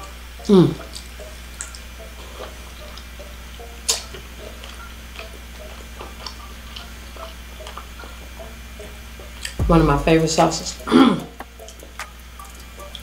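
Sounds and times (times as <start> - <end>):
wet chewing and mouth smacks: 0.8 - 3.1, 3.8 - 8.1.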